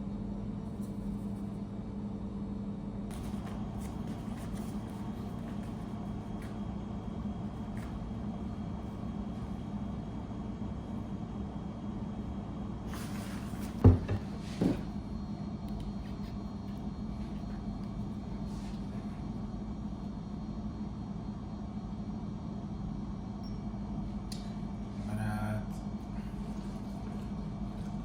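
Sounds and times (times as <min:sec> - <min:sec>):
low machine hum: 0:00.0 - 0:28.0.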